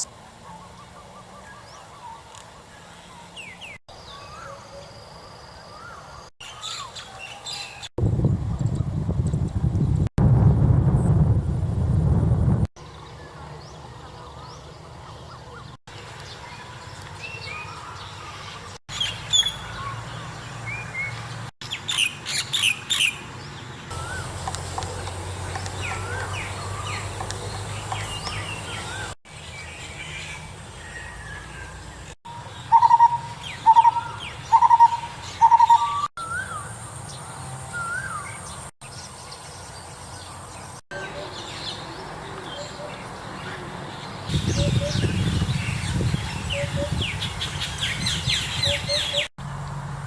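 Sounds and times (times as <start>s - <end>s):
wild birds calling and chirping: 0.0s - 7.9s, 12.8s - 50.0s
whistled bird notes: 25.6s - 36.8s, 37.7s - 39.1s, 44.3s - 49.3s.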